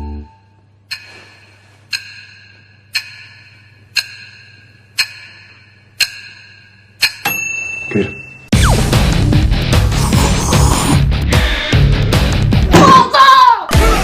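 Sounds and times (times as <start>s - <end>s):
clock ticking with metallic ring: 0.8s - 8.5s.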